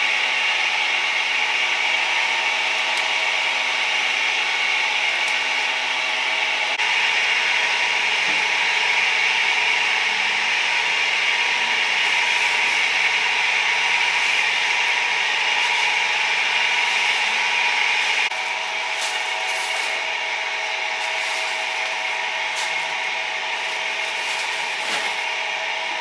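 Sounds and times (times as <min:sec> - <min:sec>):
loud hissing rasping noise: 0:10.0 - 0:26.0.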